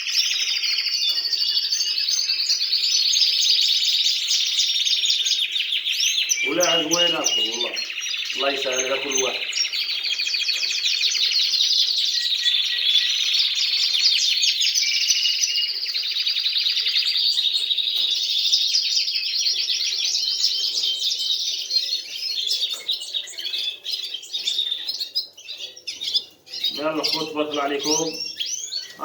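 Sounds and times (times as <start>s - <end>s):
canaries trilling song: 0.0s - 29.0s.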